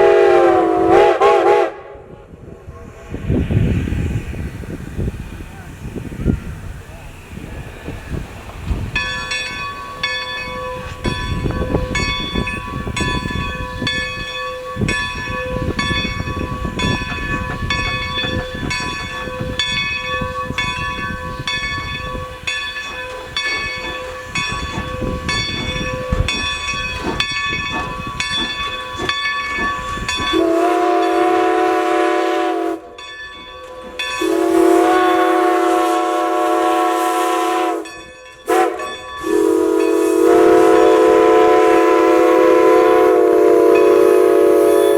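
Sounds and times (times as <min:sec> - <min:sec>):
steam whistle blasts: 0:00.0 - 0:02.2, 0:30.3 - 0:33.0, 0:34.2 - 0:37.9, 0:38.5 - 0:44.9
moving train rumble: 0:00.0 - 0:44.9
steam locomotive bell ringing: 0:05.0 - 0:44.9.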